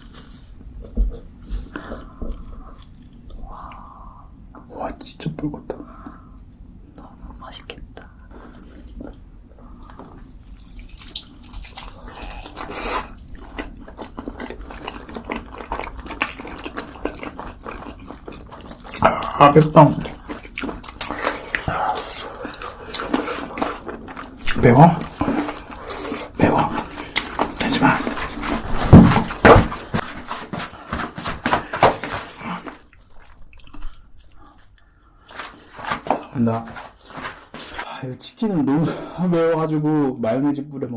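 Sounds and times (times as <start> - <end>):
mouth clicks and smacks eating: 7.8 - 28.6
wet chewing: 8.4 - 37.8.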